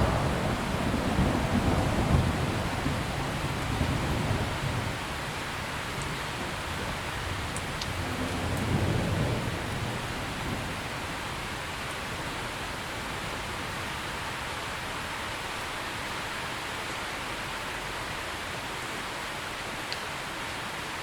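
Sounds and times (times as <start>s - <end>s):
low rumble of thunder: 0.0s - 15.1s
rain hissing: 0.0s - 16.9s.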